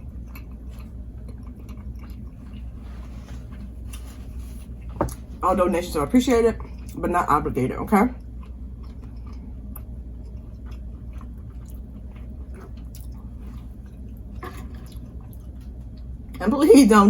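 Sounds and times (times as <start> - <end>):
person chewing with mouth open: 0.0 - 5.4, 8.2 - 16.4
low steady hum: 0.0 - 17.0.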